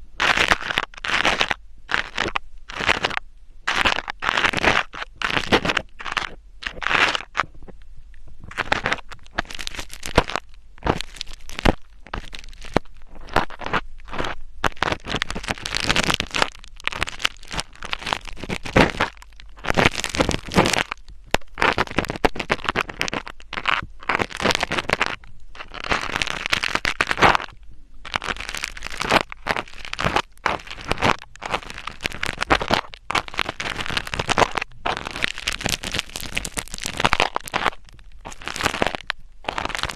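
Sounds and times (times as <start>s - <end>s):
scratching and rubbing on microphone: 0.2s - 39.9s.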